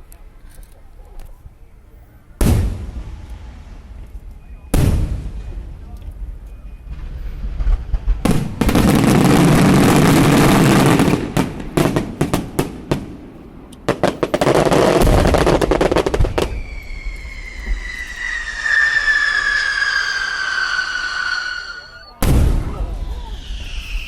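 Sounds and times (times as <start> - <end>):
fireworks bangs: 2.4 - 24.0
fireworks crackling: 2.4 - 24.0
falling firework whistle: 15.1 - 24.0.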